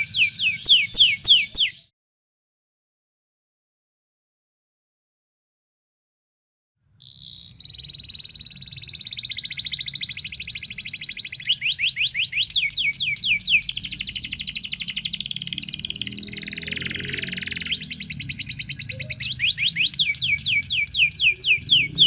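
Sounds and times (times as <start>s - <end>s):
canary singing: 0.0s - 1.9s, 6.8s - 22.0s.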